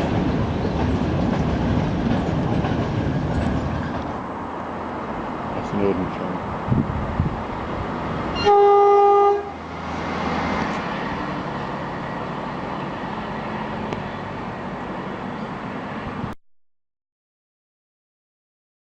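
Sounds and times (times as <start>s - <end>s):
train running: 0.0s - 16.4s
train horn blast: 8.3s - 9.6s.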